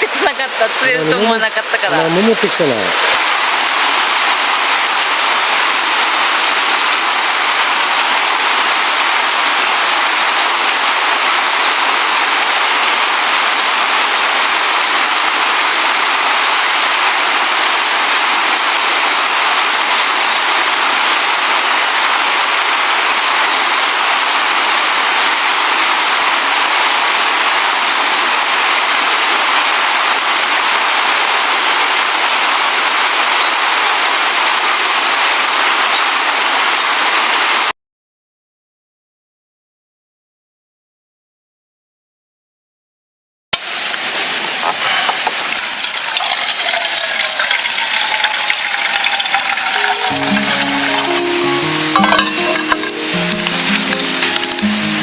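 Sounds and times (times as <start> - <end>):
river water rushing over rocks: 0.0 - 37.7, 45.2 - 55.0.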